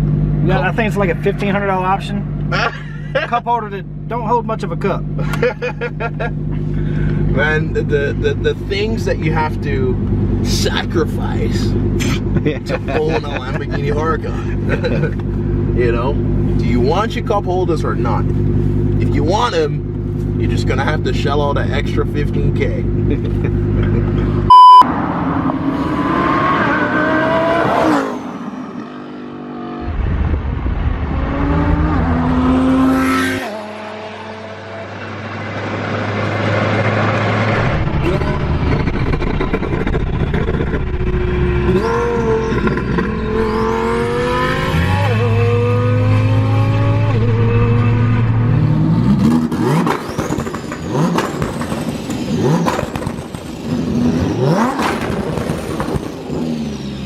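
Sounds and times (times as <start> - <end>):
sports car accelerating through gears: 22.9 - 57.0
short loud beep: 24.5 - 24.9.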